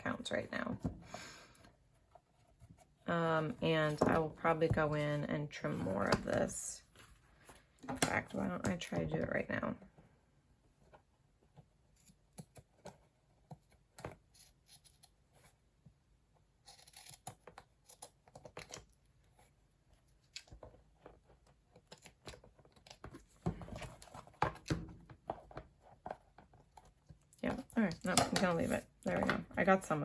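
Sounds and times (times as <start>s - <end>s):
scissors snipping paper: 16.6s - 18.8s.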